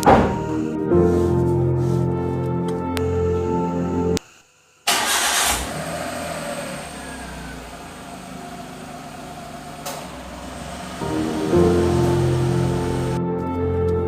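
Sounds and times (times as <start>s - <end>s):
car engine starting and idling: 4.9s - 13.2s.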